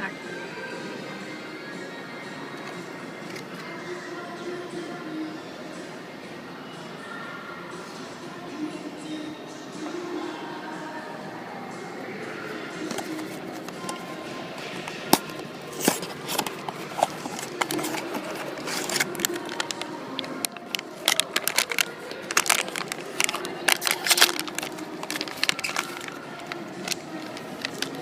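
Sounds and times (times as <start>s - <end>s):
cardboard packaging crinkling: 15.2s - 28.0s.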